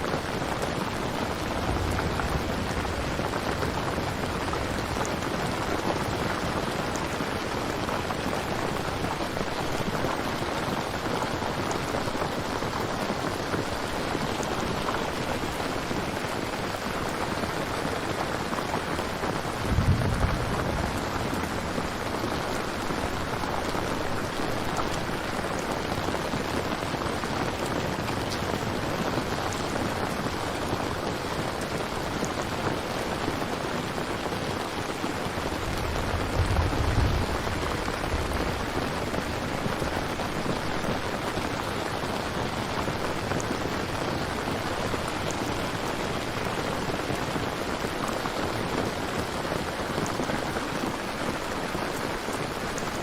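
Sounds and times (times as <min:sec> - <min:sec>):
steady rain falling: 0:00.0 - 0:53.0
low rumble: 0:19.6 - 0:22.1.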